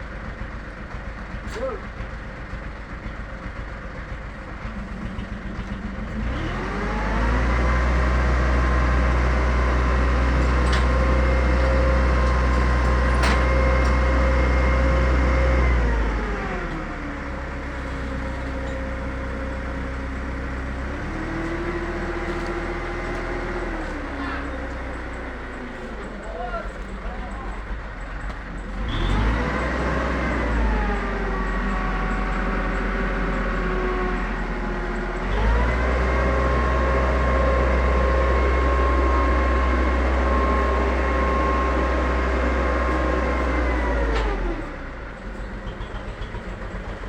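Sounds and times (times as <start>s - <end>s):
engine revving: 6.1s - 26.0s, 28.7s - 44.9s.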